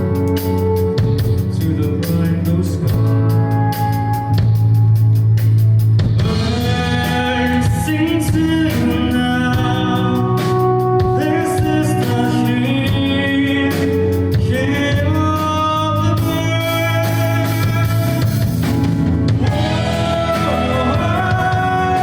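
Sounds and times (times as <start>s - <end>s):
live rock band playing: 0.0s - 22.0s
singer holding long notes: 6.2s - 22.0s.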